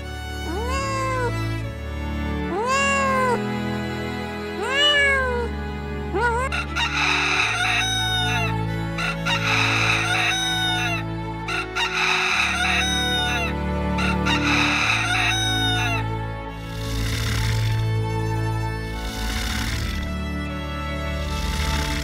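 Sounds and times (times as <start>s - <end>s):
soft background music: 0.0s - 22.0s
cat meowing: 0.4s - 1.5s, 2.5s - 3.4s, 4.6s - 5.6s
bird harsh calls: 6.6s - 17.9s, 18.9s - 20.1s.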